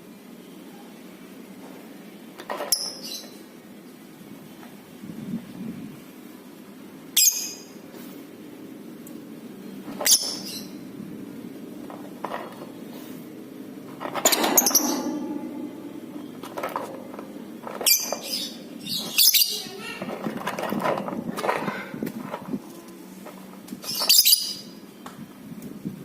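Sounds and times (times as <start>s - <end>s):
steady low hum: 10.6s - 23.9s.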